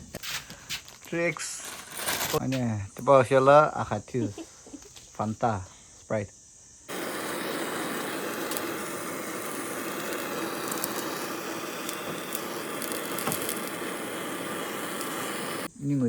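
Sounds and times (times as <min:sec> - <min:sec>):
faint crackles: 0:06.9 - 0:15.7
steady rushing noise: 0:06.9 - 0:15.7.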